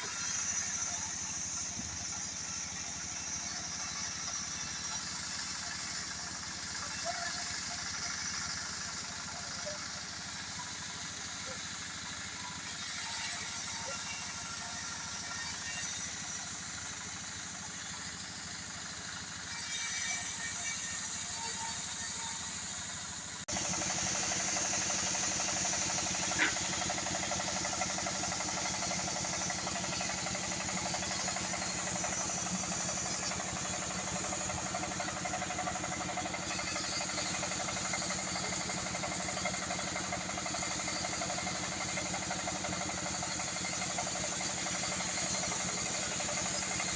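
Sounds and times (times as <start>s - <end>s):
sawmill machinery running: 0.0s - 46.9s.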